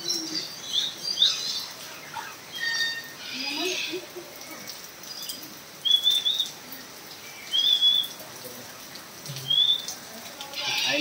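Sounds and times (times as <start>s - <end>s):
bird whistled calls: 5.8s - 6.6s, 7.5s - 8.2s, 9.4s - 9.9s.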